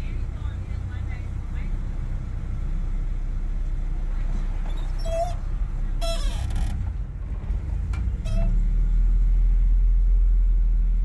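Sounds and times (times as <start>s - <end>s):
vehicle engine rumbling: 0.0s - 11.0s
short high squeaks: 4.7s - 6.8s, 8.2s - 8.6s.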